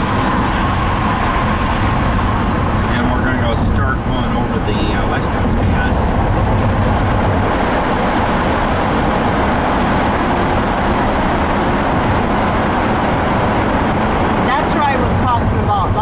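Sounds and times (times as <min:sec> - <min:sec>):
car road noise from inside: 0:00.0 - 0:16.0.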